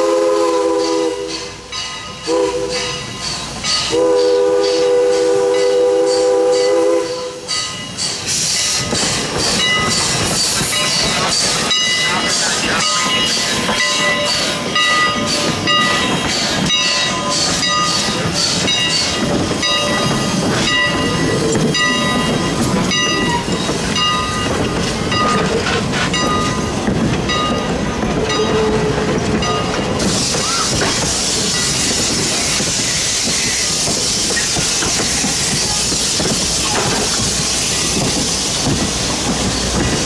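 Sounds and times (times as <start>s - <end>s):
steady steam hiss: 0.0s - 28.2s, 28.9s - 40.0s
train wheels clicking on rail joints: 0.0s - 40.0s
bell ringing: 7.5s - 24.5s.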